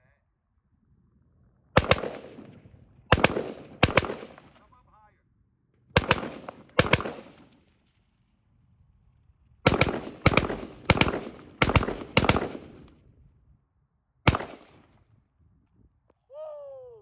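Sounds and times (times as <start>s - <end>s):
gunshots with echo: 1.8s - 4.8s, 6.0s - 7.6s, 9.7s - 12.9s, 14.3s - 14.9s.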